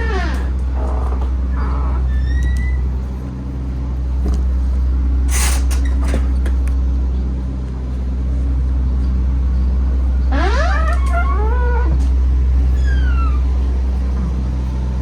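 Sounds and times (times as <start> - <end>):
truck diesel engine idling: 0.0 - 15.0.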